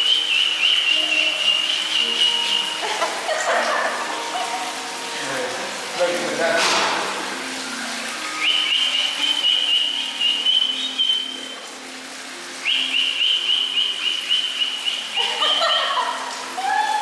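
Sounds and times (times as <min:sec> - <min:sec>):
bird whistling high notes: 0:00.0 - 0:02.8, 0:08.3 - 0:11.7, 0:12.6 - 0:15.7.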